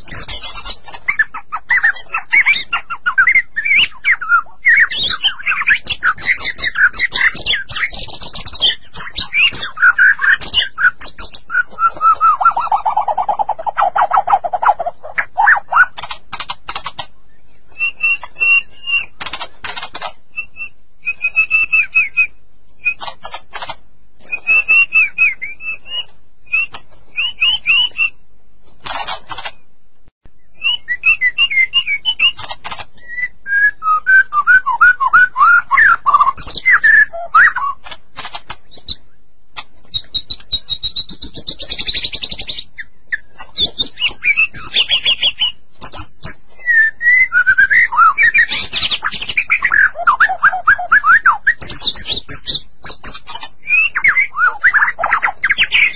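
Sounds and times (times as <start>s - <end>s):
songbird singing trills: 0.0s - 23.4s, 24.2s - 28.2s, 30.3s - 37.8s, 39.8s - 55.9s
high bird whistle: 20.3s - 23.1s, 24.2s - 28.2s, 33.0s - 37.8s, 43.6s - 55.9s.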